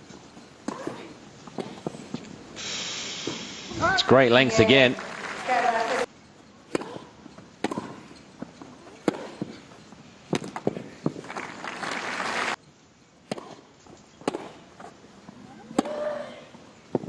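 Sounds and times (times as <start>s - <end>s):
crowd noise: 3.7s - 6.1s, 11.1s - 12.6s
tennis ball struck by rackets: 6.7s - 8.1s, 8.9s - 9.6s, 10.3s - 11.2s, 13.2s - 14.6s
ball bounces: 6.7s - 8.4s, 9.0s - 9.6s, 10.3s - 11.4s, 14.2s - 14.6s, 15.7s - 16.1s.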